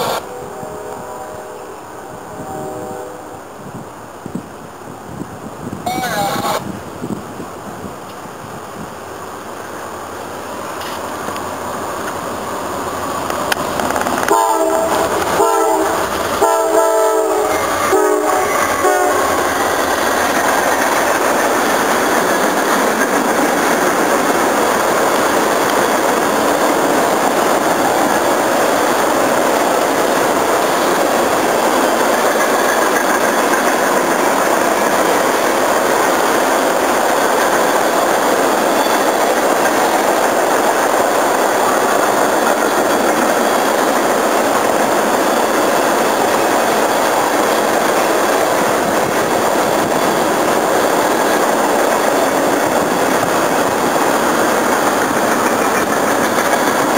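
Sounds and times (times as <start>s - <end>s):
train horn blasts: 0.0s - 3.5s, 14.3s - 19.4s
train wheels rushing on rail: 0.0s - 56.9s.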